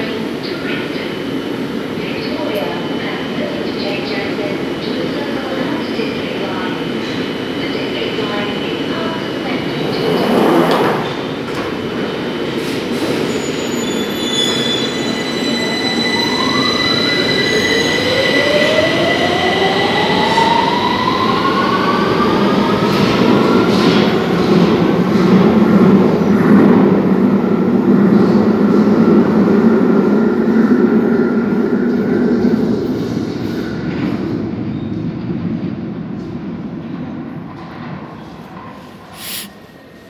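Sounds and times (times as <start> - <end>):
wheels rumbling on rail: 2.3 - 16.6
wheel squeal: 12.9 - 18.1.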